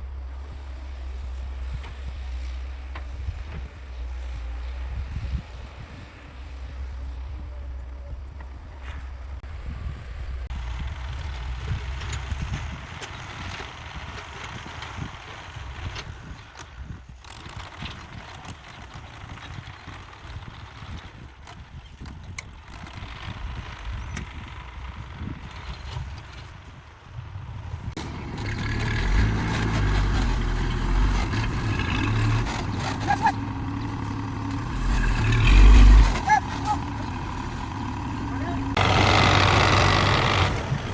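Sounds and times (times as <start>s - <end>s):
diesel machinery engine rumble: 0.0s - 40.9s
irregular knocks and clatter: 27.9s - 40.9s.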